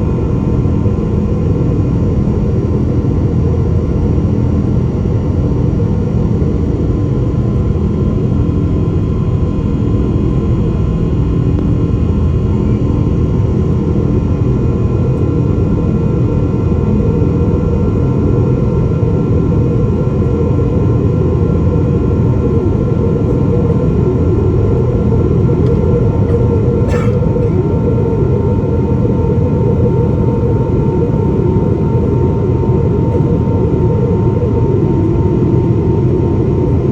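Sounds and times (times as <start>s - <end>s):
jet engine rumble in cabin: 0.0s - 36.9s.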